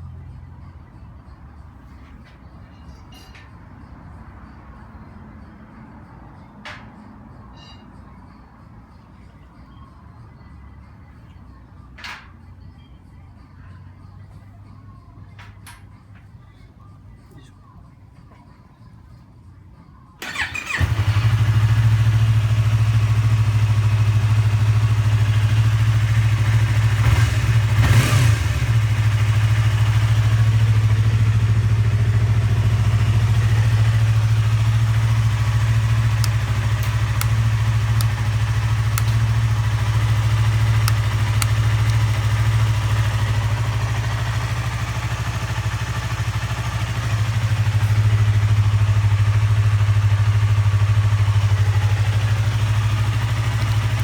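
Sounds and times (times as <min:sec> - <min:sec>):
motorcycle engine starting and idling: 0:20.2 - 0:54.0.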